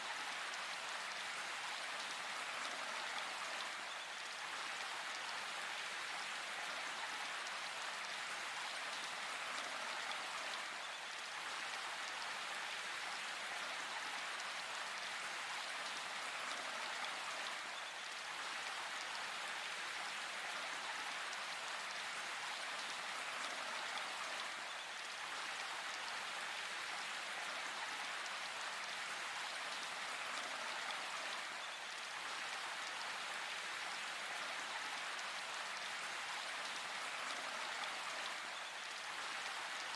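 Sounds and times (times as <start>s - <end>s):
rain on foliage and ground: 0.0s - 39.9s.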